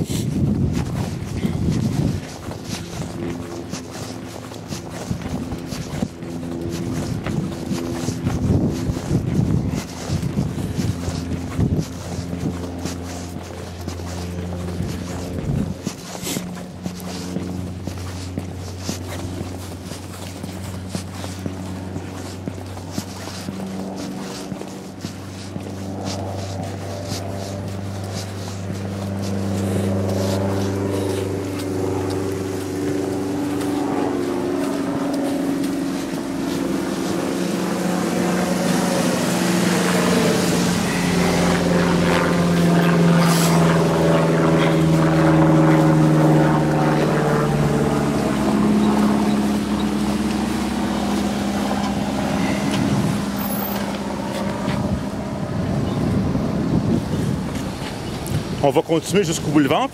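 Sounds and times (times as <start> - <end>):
car engine droning: 0.0 - 59.9.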